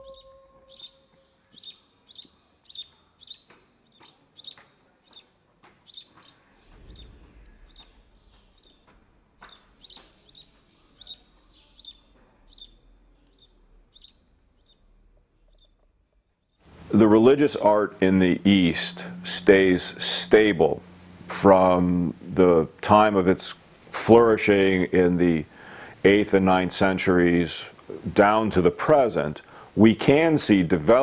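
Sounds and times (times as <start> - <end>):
held musical tone: 0.0 - 1.2, 16.7 - 25.4
small songbird chirping: 0.0 - 17.8.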